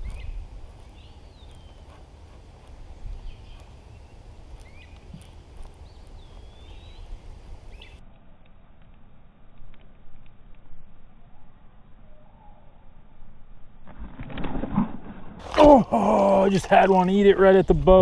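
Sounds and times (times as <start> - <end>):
bird chirps: 0.0 - 8.0, 11.2 - 12.8
wind buffeting microphone: 0.0 - 8.0.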